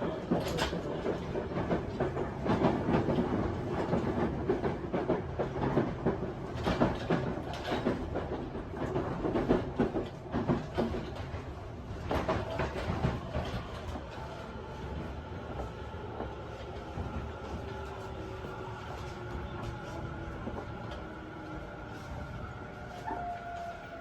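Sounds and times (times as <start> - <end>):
rattling inside train car: 0.0 - 24.0
train running rumble: 0.0 - 24.0
wheel clatter over rail joints: 0.2 - 15.8.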